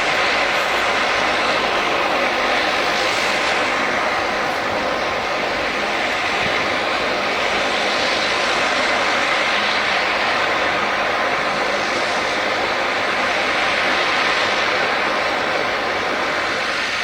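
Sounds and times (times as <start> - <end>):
airliner engines rushing: 0.0 - 17.0.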